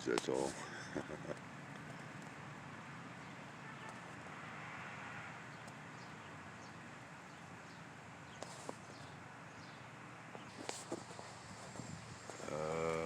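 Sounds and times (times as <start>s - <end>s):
distant bird chirps: 4.8s - 13.0s.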